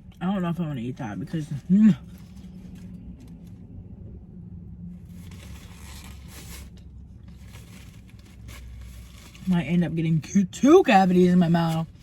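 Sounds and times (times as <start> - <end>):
low hum inside car: 0.0 - 12.0
faint soft rustling: 5.0 - 9.6.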